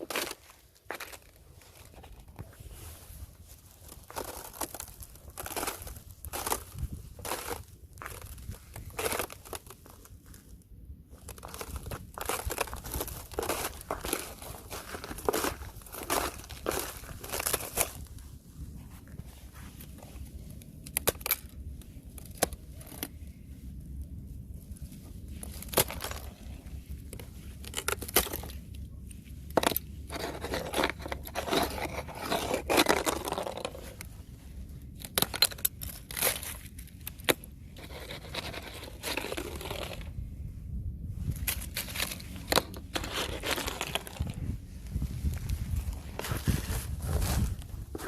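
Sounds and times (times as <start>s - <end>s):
ice scraping: 0.0s - 10.2s, 11.2s - 18.1s, 25.3s - 28.6s, 29.5s - 34.1s, 37.7s - 40.2s, 41.4s - 48.0s
thin ice cracking: 3.9s - 10.2s, 11.2s - 18.0s, 20.8s - 23.1s, 25.4s - 28.7s, 29.5s - 34.1s, 35.0s - 40.1s, 41.4s - 44.4s.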